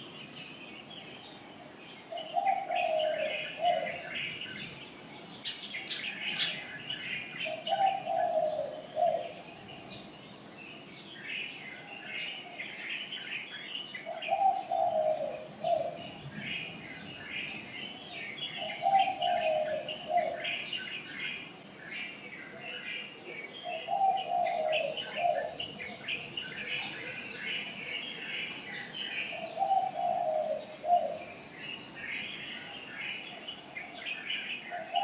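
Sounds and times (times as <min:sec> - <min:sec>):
small birds chirping: 0:00.0 - 0:35.0
dove cooing: 0:02.1 - 0:04.7, 0:06.2 - 0:10.0, 0:14.0 - 0:21.4, 0:22.6 - 0:31.4, 0:32.3 - 0:35.0.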